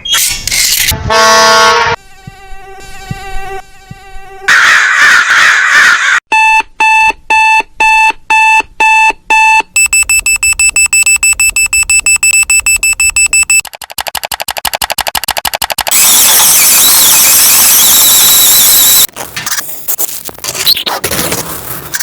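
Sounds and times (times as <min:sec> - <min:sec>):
loud beeping alarm: 0:09.8 - 0:13.6, 0:15.9 - 0:19.1
rapid high-pitched beeps: 0:09.8 - 0:13.7.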